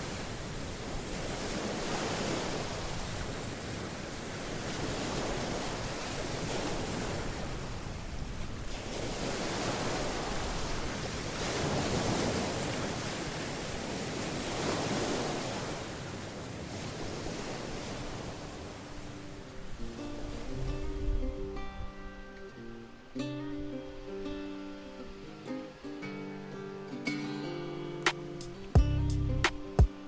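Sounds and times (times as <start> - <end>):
wind rumbling on microphone: 0.0 - 22.3
ocean waves washing onto shore: 0.0 - 28.7, 29.5 - 30.0.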